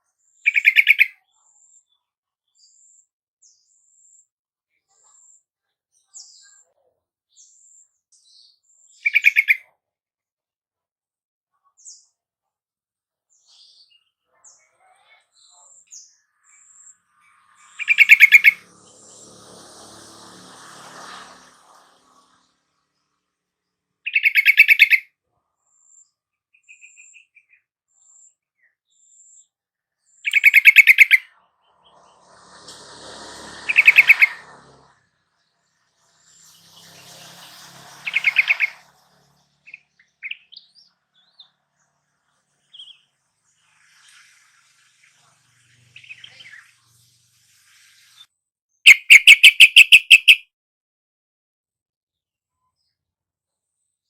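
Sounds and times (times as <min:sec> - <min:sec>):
bird chattering calls: 0:00.5 - 0:01.1, 0:16.4 - 0:18.7, 0:24.1 - 0:25.0, 0:30.2 - 0:32.1, 0:33.6 - 0:34.6, 0:38.0 - 0:38.9, 0:48.9 - 0:50.4
bird sharp chattering notes: 0:17.6 - 0:18.6, 0:24.1 - 0:25.0, 0:30.3 - 0:31.2, 0:48.9 - 0:50.4.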